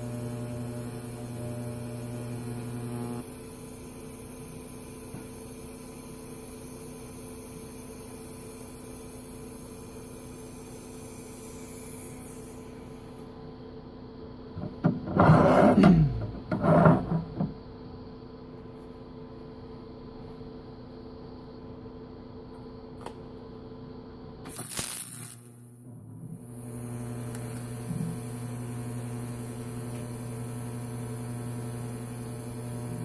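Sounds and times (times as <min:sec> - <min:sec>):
welder humming: 0:00.0 - 0:13.4, 0:24.5 - 0:33.0
loud scraping and clattering: 0:14.9 - 0:17.5.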